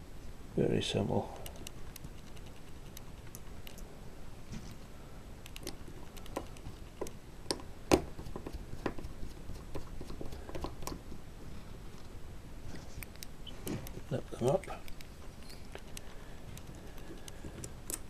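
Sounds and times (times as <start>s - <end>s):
small screws clicking and tapping: 1.4s - 3.9s, 5.4s - 11.1s, 13.0s - 18.0s.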